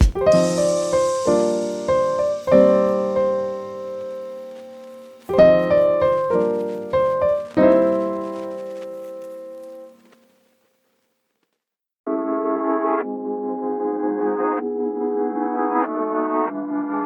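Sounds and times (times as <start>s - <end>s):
slow piano chords: 0.0s - 10.0s.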